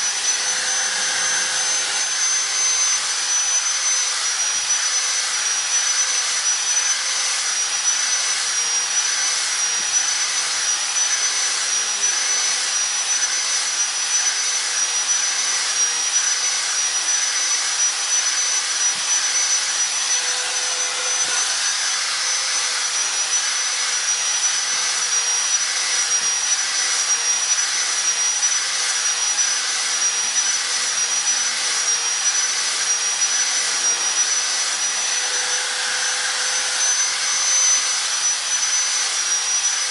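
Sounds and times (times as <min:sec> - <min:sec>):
electric grinder whining: 0:00.0 - 0:39.9.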